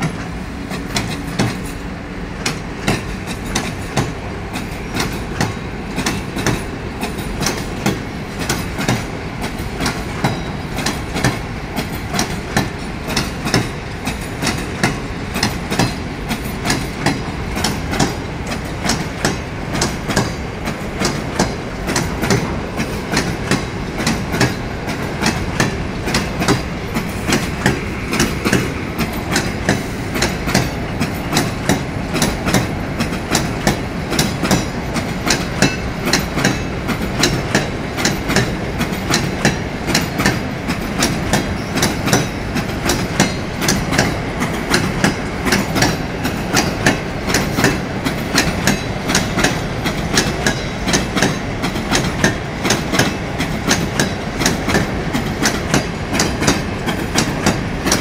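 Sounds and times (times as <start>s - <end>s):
train rumbling on rails: 0.0s - 58.0s
wheels clicking over rail joints: 0.0s - 58.0s.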